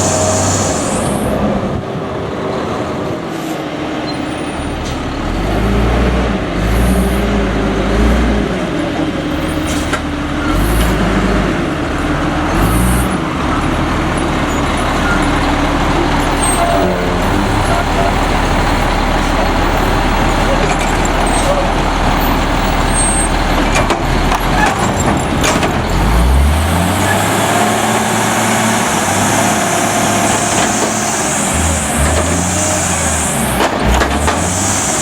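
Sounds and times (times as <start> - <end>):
garbage truck diesel engine: 0.0 - 35.0.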